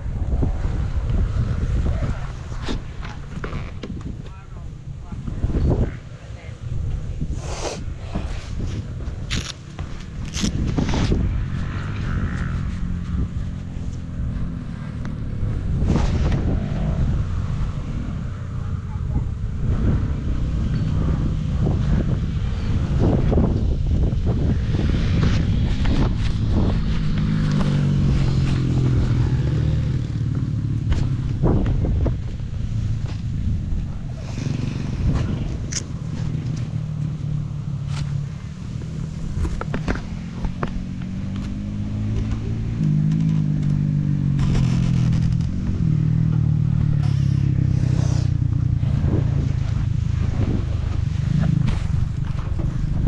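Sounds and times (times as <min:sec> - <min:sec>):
dirt bike two-stroke engine: 0:22.8 - 0:38.1, 0:38.7 - 0:53.0.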